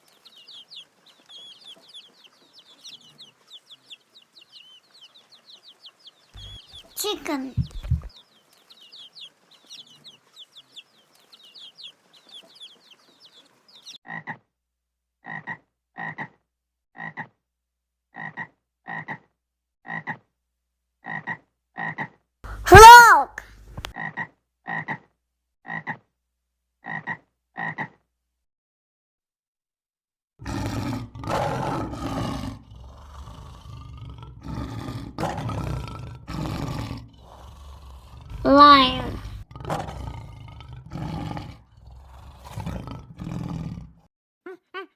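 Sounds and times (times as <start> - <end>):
chicks peeping: 0.0 - 14.0
lion rumbling: 6.4 - 8.1, 30.4 - 44.0
frog croaking: 25.7 - 26.0, 26.8 - 28.0
lion roaring: 30.4 - 44.1.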